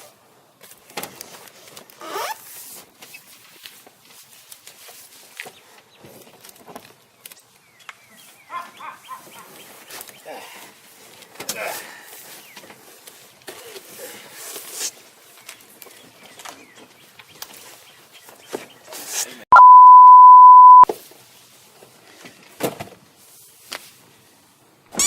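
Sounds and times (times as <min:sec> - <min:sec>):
censor bleep: 0:19.5 - 0:20.9.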